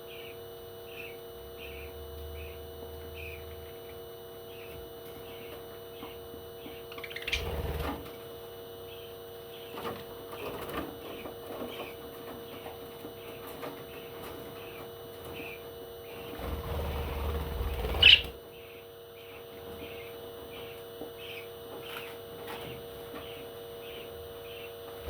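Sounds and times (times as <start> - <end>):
electrical hum: 0.0 - 25.0
noisy bursts: 13.2 - 20.6.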